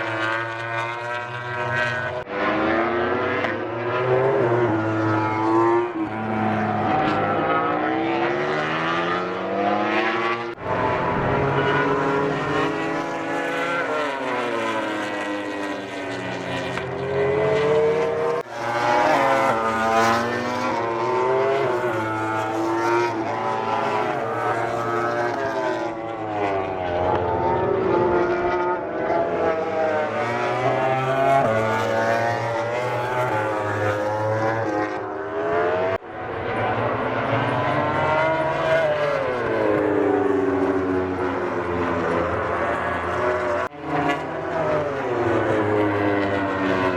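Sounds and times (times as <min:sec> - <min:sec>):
racing motorcycle engines revving: 0:00.0 - 0:46.9.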